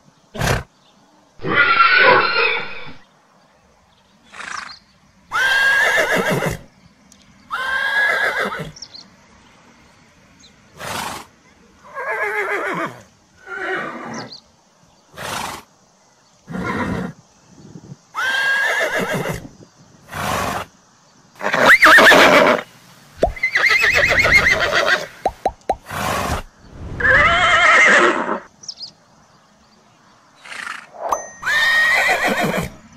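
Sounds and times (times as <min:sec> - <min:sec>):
horse neighing: 0:01.4 - 0:03.0, 0:05.3 - 0:06.6, 0:07.5 - 0:08.8, 0:11.9 - 0:14.3, 0:16.5 - 0:17.2, 0:18.2 - 0:19.4, 0:21.4 - 0:22.6, 0:23.3 - 0:25.2, 0:25.8 - 0:28.5, 0:30.4 - 0:32.8
horse breathy bursts: 0:25.1 - 0:27.3.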